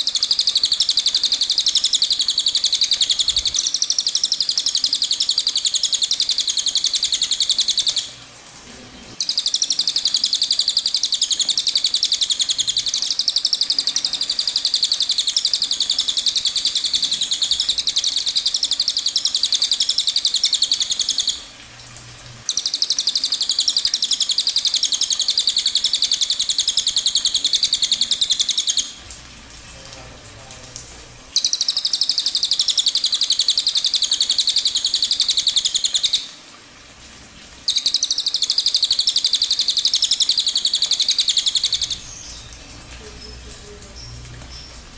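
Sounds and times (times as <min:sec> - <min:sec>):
songbird twittering: 0:00.0 - 0:08.1, 0:09.2 - 0:21.4, 0:22.5 - 0:28.9, 0:31.4 - 0:36.3, 0:37.7 - 0:42.6.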